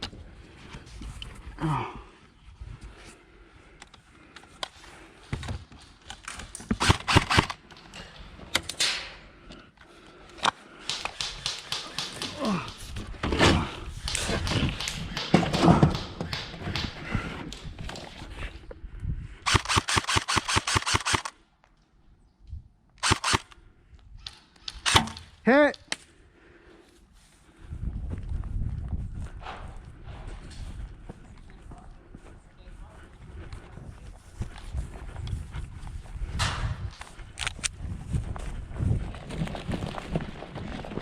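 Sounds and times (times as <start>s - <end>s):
airsoft guns firing: 6.7s - 7.6s, 10.8s - 12.8s, 19.5s - 21.3s, 23.0s - 23.5s.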